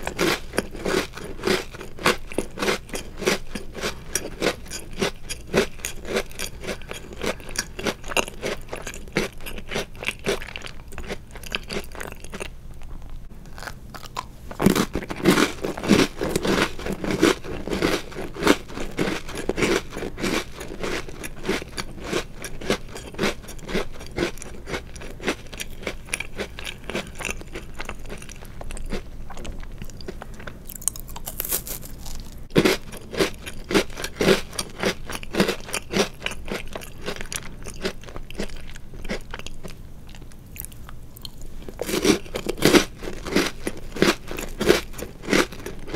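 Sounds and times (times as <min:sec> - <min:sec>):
crunching and chewing cookies: 0:00.0 - 0:45.9.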